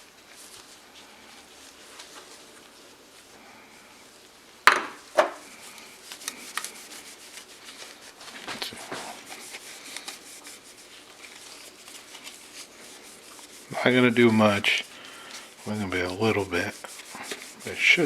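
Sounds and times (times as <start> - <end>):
rubbing and scraping on metal: 5.5 - 18.0.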